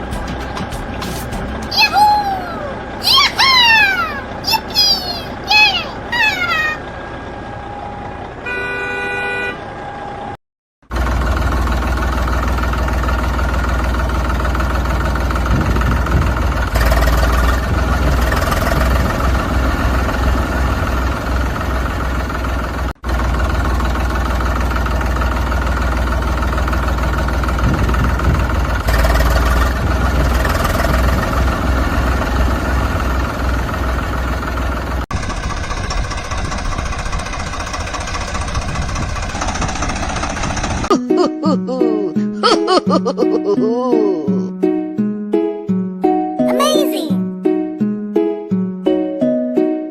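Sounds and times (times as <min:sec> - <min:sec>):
tractor engine idling: 0:00.0 - 0:07.5, 0:10.9 - 0:40.9.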